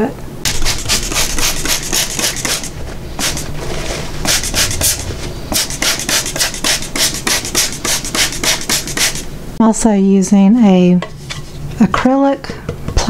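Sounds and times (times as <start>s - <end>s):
squeeze bottle being shaken: 0.5s - 9.2s.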